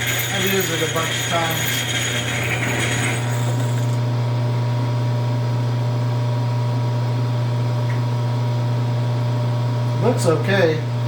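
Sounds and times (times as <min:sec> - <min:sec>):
lathe running with low hum: 0:00.0 - 0:07.7.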